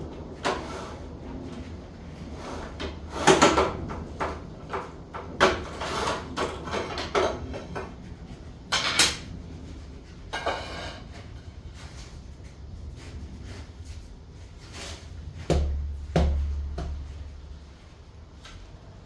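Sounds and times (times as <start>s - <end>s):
scraping and clattering hand work: 0.1s - 18.6s
steady low hum: 11.4s - 19.0s.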